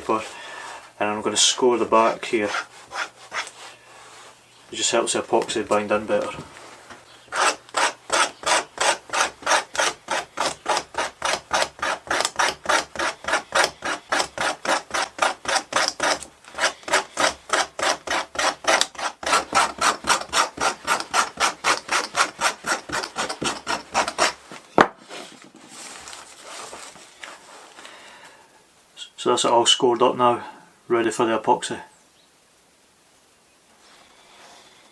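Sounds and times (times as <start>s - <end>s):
scratching strokes on leather: 2.0s - 4.4s, 6.7s - 27.7s.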